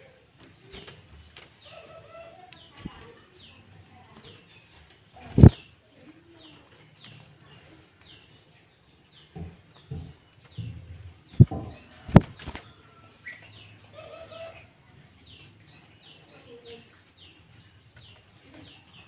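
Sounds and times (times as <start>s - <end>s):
bird singing falling chirps: 4.5s - 5.8s.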